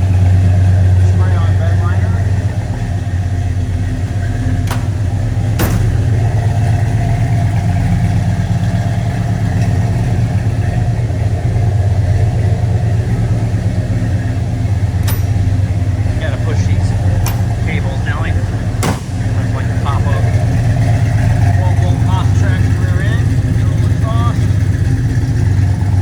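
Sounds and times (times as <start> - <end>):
car engine idling: 0.0 - 26.0
sharp knocks: 4.6 - 6.3, 18.8 - 19.2.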